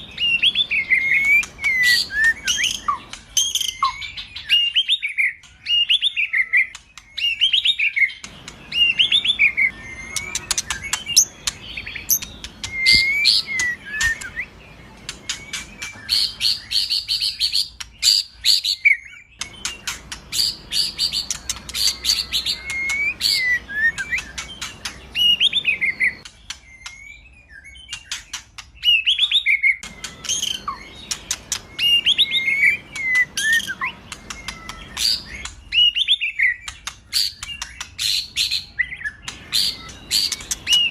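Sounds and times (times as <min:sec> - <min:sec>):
songbird whistling song: 0:00.0 - 0:40.9
bird rapid ticking chatter: 0:08.2 - 0:14.4, 0:19.4 - 0:25.6, 0:29.8 - 0:38.4, 0:39.2 - 0:40.9.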